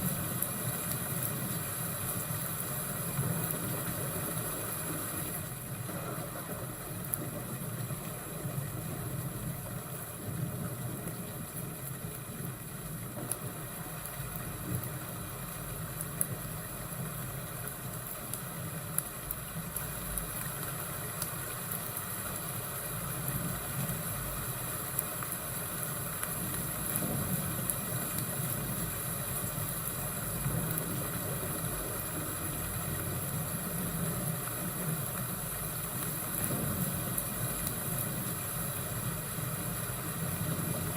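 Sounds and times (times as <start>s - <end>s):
fire crackles: 0.0s - 40.9s
low rumble of thunder: 5.7s - 14.9s, 26.6s - 34.4s, 36.3s - 40.9s.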